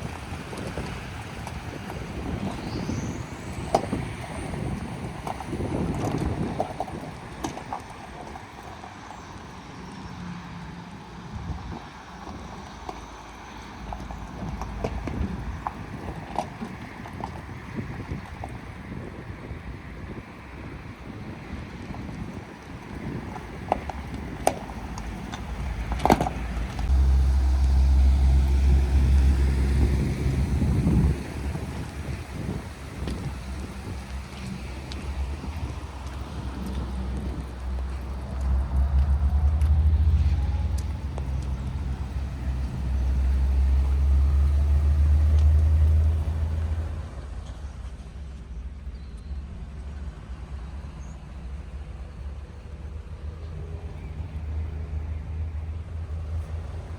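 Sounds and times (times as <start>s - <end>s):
pickup engine humming: 0.0s - 56.9s.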